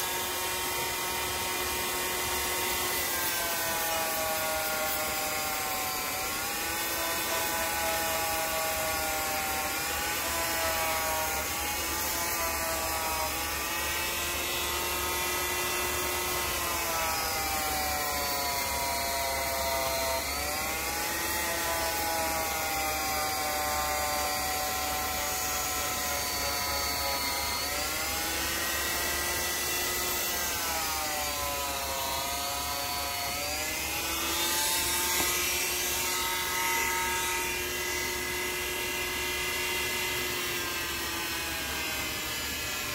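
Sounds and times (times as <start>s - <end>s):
electric power tool motor whine: 0.0s - 42.9s.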